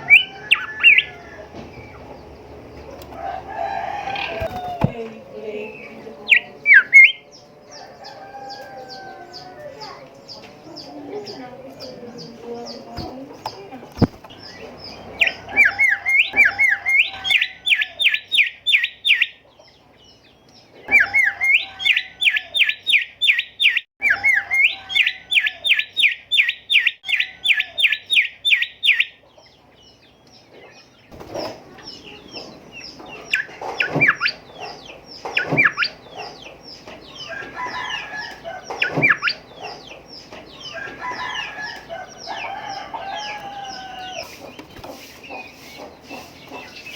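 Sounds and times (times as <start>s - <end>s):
bird singing whistled notes: 0.0s - 1.1s, 5.7s - 7.4s
sharp bird calls: 0.0s - 46.9s.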